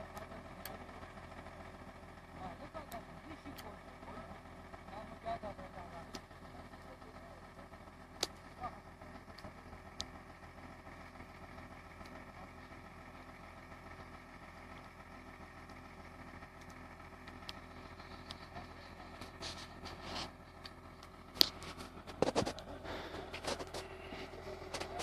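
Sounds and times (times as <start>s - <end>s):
excavator diesel engine running: 0.0s - 25.0s
scraping: 21.4s - 25.0s.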